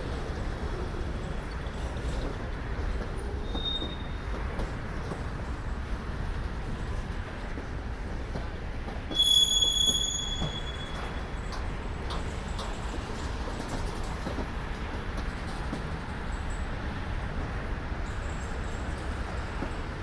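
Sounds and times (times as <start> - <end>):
freight train rumbling: 0.0 - 20.0
high-pitched wheel squeal: 9.1 - 11.2.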